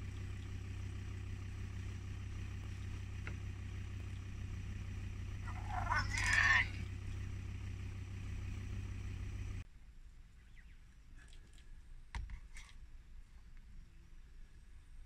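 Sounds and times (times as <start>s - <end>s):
vehicle engine idling: 0.0s - 9.7s
wavering pitched call: 5.4s - 7.2s.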